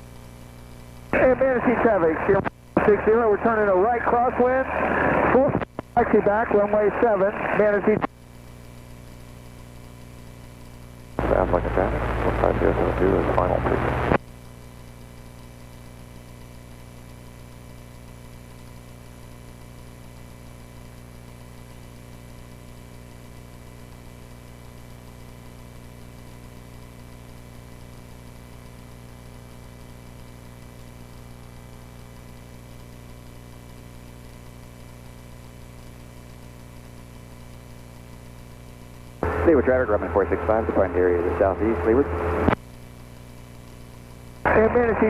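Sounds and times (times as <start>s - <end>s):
faint electrical whines: 0.0s - 45.0s
small airplane engine droning: 11.2s - 14.1s, 39.2s - 42.6s.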